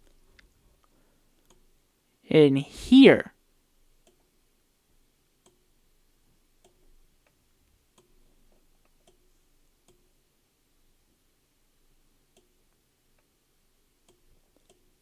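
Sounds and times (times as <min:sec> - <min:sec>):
computer mouse clicks: 0:01.4 - 0:01.7, 0:04.0 - 0:04.3, 0:06.6 - 0:08.2, 0:08.8 - 0:10.1, 0:14.0 - 0:14.9.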